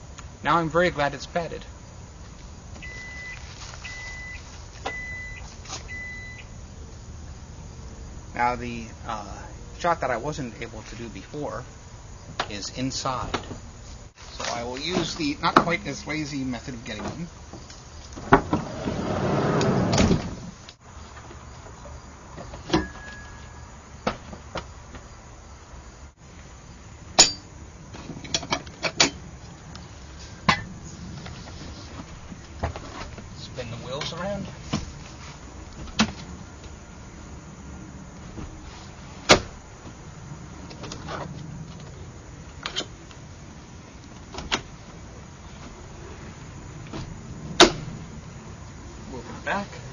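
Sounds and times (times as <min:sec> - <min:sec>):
sliding van door rolling and shutting: 0:16.9 - 0:20.7, 0:38.0 - 0:42.0, 0:44.0 - 0:48.2
seat latches clunking: 0:18.1 - 0:20.5
faint short tone: 0:22.8 - 0:23.7.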